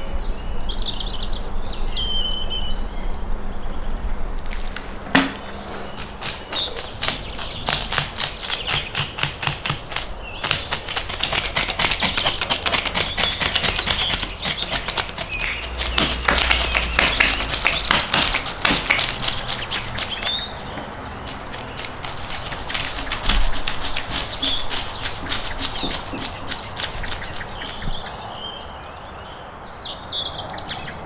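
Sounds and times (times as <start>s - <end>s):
rapid knife tapping: 6.0s - 20.5s, 21.2s - 28.0s.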